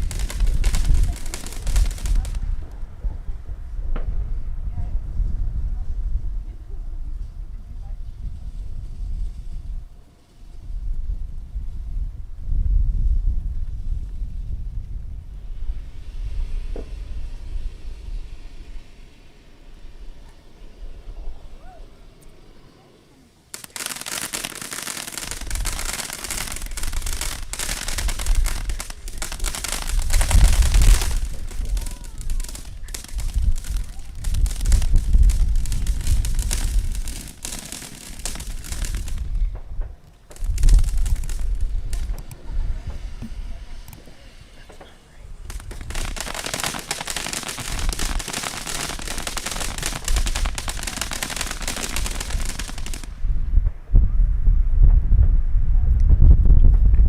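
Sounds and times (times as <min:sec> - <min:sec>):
fireworks crackling and popping: 0:00.0 - 0:04.5, 0:05.2 - 0:09.9, 0:23.4 - 0:53.9
deep firework booms: 0:00.0 - 0:05.7, 0:23.6 - 0:43.6, 0:44.7 - 0:57.0.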